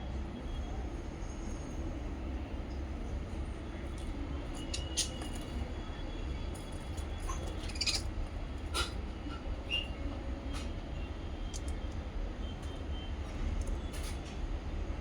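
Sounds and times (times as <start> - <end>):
parrots chirping: 7.6 - 8.0.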